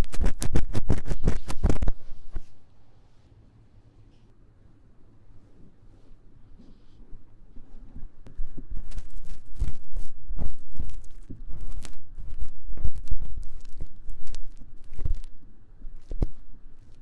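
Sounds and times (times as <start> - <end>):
tool scratching inside microphone ear: 0.0 - 2.6, 8.3 - 17.0.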